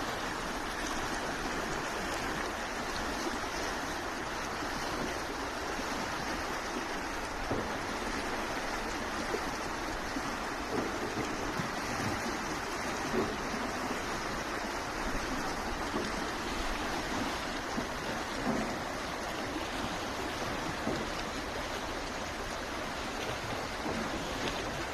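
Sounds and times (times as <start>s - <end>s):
flowing water rushing: 0.0s - 24.9s
small water splashes: 0.0s - 24.9s.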